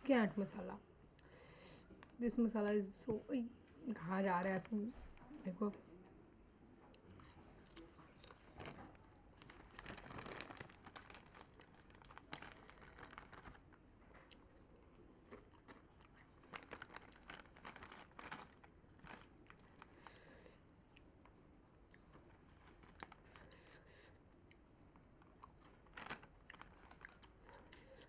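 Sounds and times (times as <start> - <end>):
chip packet crinkling: 7.2 - 14.4, 15.2 - 20.4, 21.2 - 23.8, 25.0 - 28.0.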